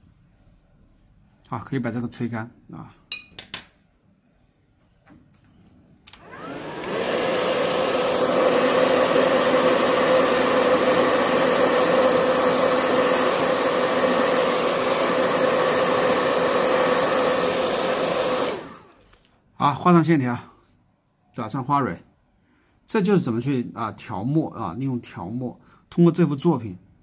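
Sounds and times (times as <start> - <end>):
hair dryer blowing: 6.1 - 19.0.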